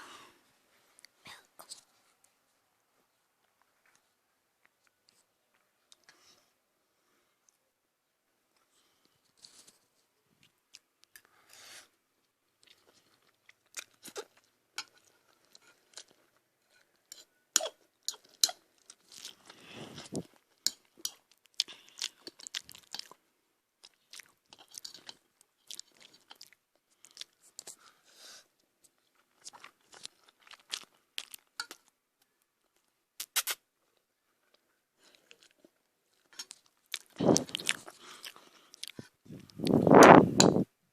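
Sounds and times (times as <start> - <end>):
person chewing crunchy food: 12.6 - 23.2, 23.8 - 27.8, 29.0 - 31.9, 35.0 - 40.0.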